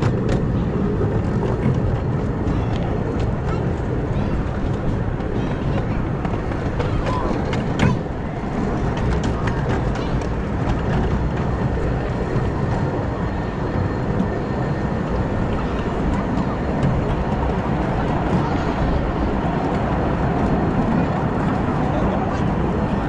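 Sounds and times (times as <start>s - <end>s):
miniature train cars rumbling and rattling: 0.0s - 23.0s.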